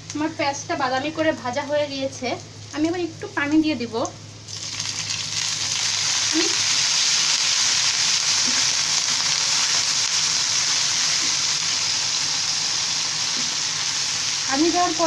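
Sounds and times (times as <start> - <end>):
onions sizzling in hot oil: 0.1 - 15.0
water hissing on hot oil: 4.5 - 15.0.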